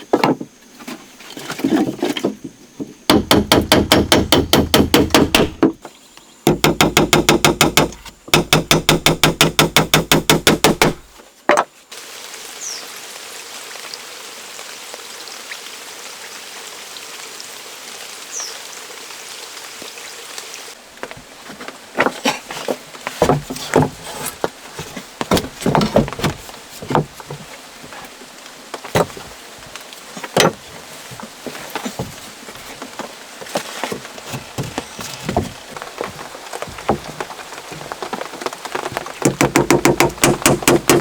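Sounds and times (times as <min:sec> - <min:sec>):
rapid wooden knocking: 0:03.1 - 0:05.8, 0:06.5 - 0:11.0, 0:37.9 - 0:41.0
steady hiss: 0:11.0 - 0:39.2.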